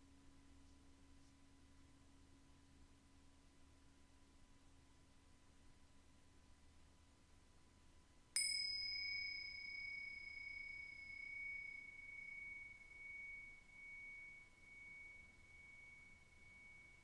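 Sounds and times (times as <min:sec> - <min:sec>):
chime ringing high tone: 0:08.4 - 0:17.0.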